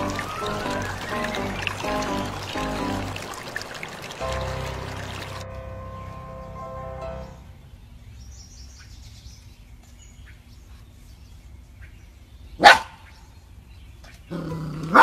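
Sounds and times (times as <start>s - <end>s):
dog barking: 12.6s - 13.0s.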